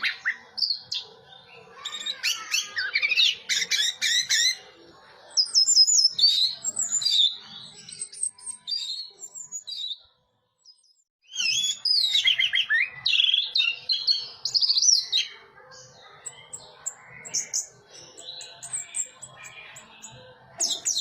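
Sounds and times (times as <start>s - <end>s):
thrush singing: 15.9s - 21.0s.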